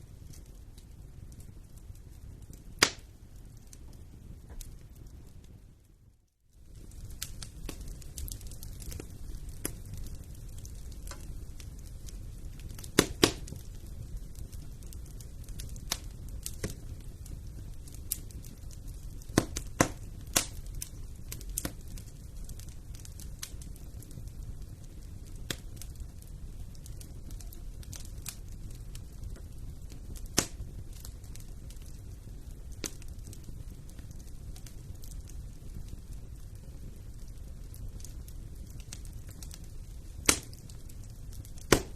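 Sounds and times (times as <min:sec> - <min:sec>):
sharp pops of fire: 0:00.0 - 0:06.0, 0:06.6 - 0:41.9
fireplace fire crackling: 0:00.0 - 0:41.9
low rumble of fire: 0:00.0 - 0:41.9
loud fire pop: 0:02.8 - 0:03.1, 0:12.7 - 0:13.7, 0:19.3 - 0:20.5, 0:30.3 - 0:30.6, 0:40.2 - 0:40.6, 0:41.5 - 0:41.9.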